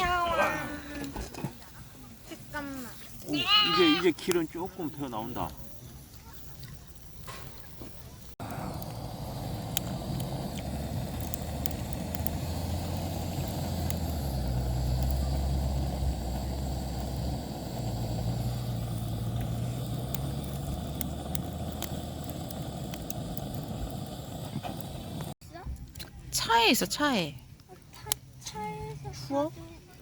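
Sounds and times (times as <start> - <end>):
vehicle engine humming: 8.4 - 25.4.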